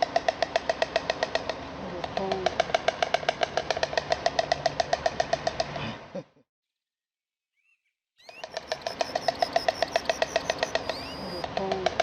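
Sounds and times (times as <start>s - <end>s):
stork clattering its bill: 8.3s - 12.0s.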